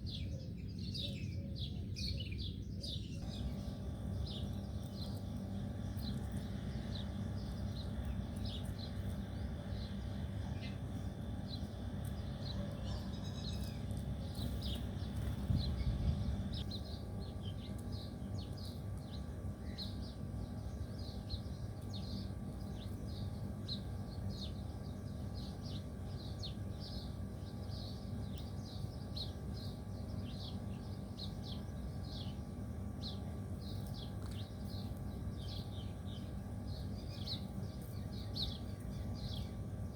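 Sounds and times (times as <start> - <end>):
small birds chirping: 0.0 - 39.9
low rumble: 3.2 - 17.3.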